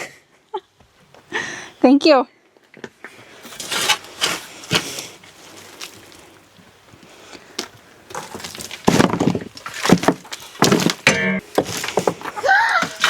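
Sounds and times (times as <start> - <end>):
wood and debris knocking and crunching: 7.6 - 13.0.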